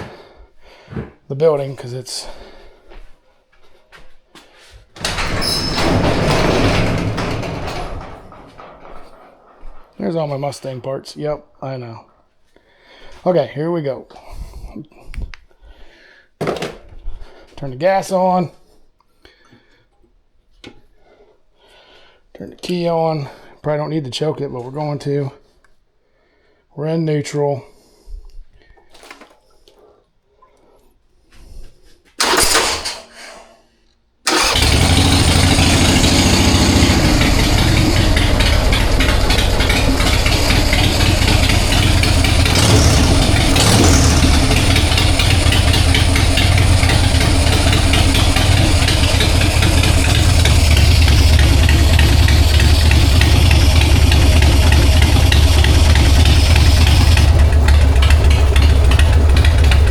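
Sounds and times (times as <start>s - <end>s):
motorcycle engine starting: 5.0s - 9.9s, 32.2s - 33.1s, 34.3s - 59.9s
motorcycle engine running: 34.3s - 59.9s.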